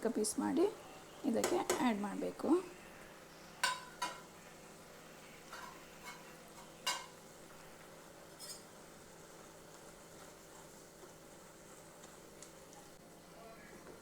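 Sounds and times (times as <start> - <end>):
cooking utensil knocking on a pan: 3.6 - 4.2, 6.8 - 7.1.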